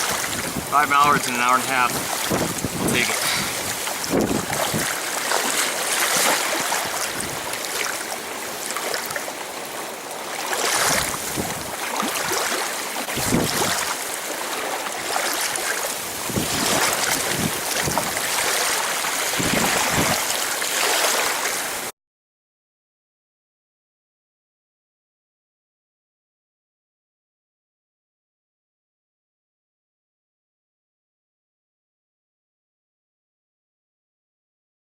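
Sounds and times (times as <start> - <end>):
wind blowing in gusts: 0.0 - 9.9, 10.6 - 14.4, 15.0 - 21.9.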